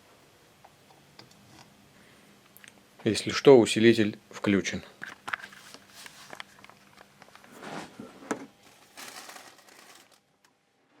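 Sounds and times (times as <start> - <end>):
rustling and crinkling: 5.0 - 10.5.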